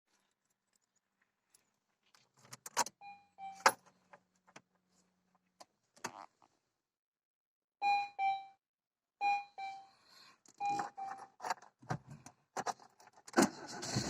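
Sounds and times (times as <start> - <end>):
short electronic beeps: 9.2 - 9.9, 10.6 - 11.2.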